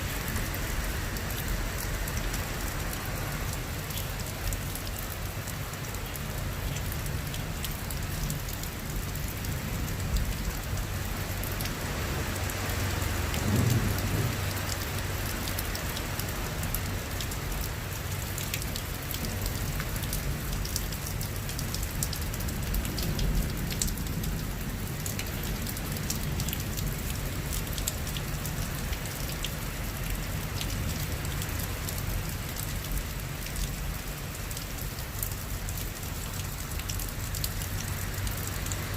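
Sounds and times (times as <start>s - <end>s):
rain falling: 0.0s - 38.9s
raindrop ticks: 0.3s - 38.9s
thunder rumble: 13.3s - 14.6s.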